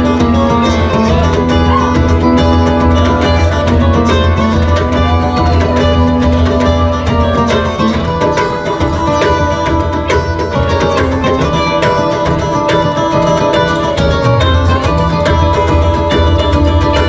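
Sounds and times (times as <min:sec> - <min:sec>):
drums: 0:00.0 - 0:17.0
electric guitar lead: 0:00.0 - 0:17.0.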